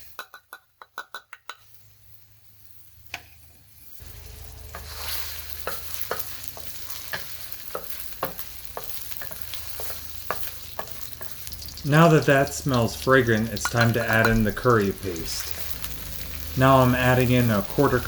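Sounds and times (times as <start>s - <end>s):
utensil clicking against wok: 0.0s - 1.7s, 4.7s - 16.6s
garlic sizzling in oil: 0.0s - 18.0s.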